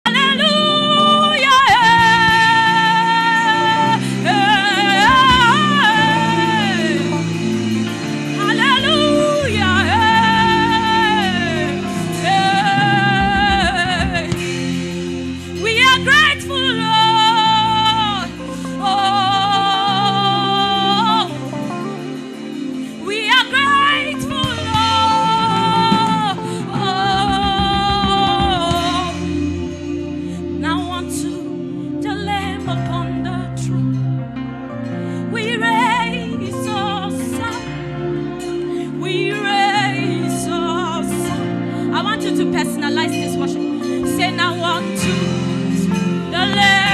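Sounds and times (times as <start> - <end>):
person singing gospel: 0.0 - 34.0
sustained accompanying chords: 0.0 - 46.9.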